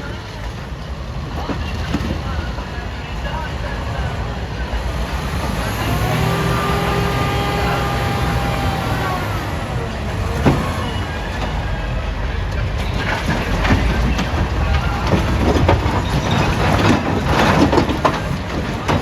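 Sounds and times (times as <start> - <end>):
diesel engine under load: 0.0 - 19.0
rocks knocking and scraping: 12.8 - 19.0.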